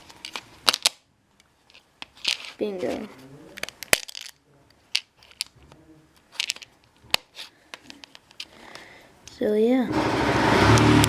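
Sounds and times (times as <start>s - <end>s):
plastic bricks clicking and clattering: 1.7s - 5.6s, 6.2s - 8.5s.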